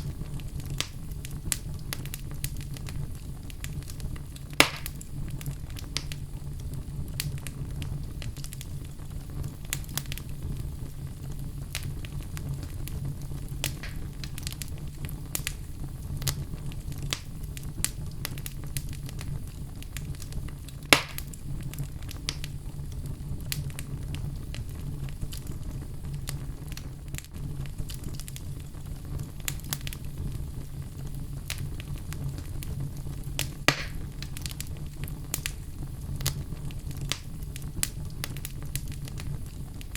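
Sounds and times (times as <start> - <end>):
fire crackling in fireplace: 0.0 - 39.9.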